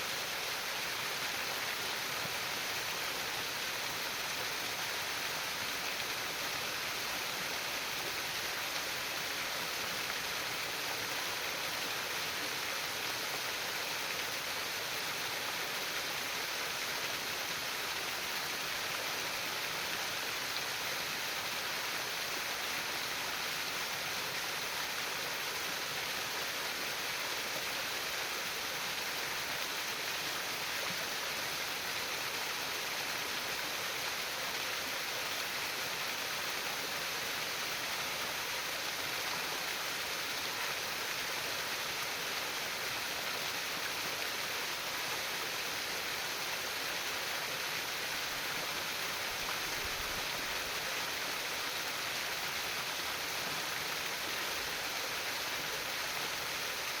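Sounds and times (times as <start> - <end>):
stream water trickling and gurgling: 0.0 - 57.0.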